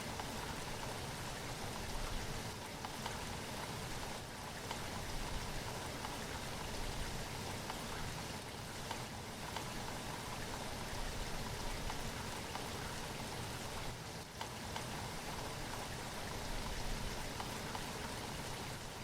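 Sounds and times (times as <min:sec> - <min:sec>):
steady rainfall with pattering drops: 0:00.0 - 0:19.0.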